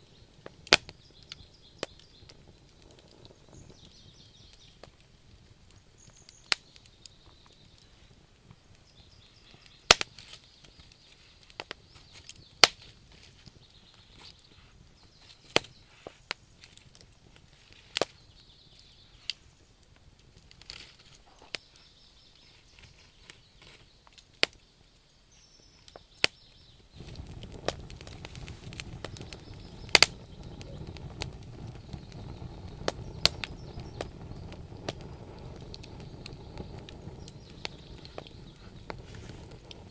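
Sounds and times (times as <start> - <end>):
faint bird chirps: 0.0 - 4.9, 5.8 - 12.6, 13.4 - 16.6, 17.7 - 19.8, 21.2 - 27.3, 28.0 - 39.9
wood fire crackling and popping: 0.0 - 39.9
low rushing noise: 27.0 - 39.9.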